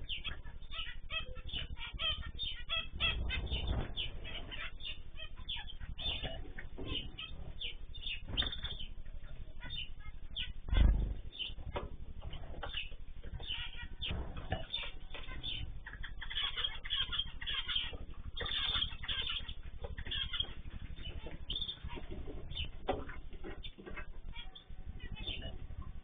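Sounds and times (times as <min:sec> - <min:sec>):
small birds chirping: 0:00.0 - 0:26.0
wing flapping: 0:01.6 - 0:09.0.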